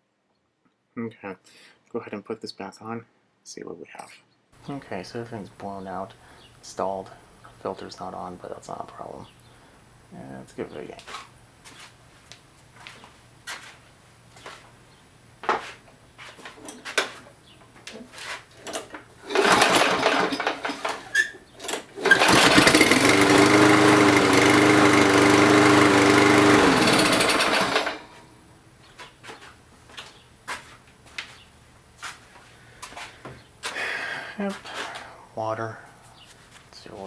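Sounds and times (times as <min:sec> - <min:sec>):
lawn mower engine running: 0:18.6 - 0:28.4.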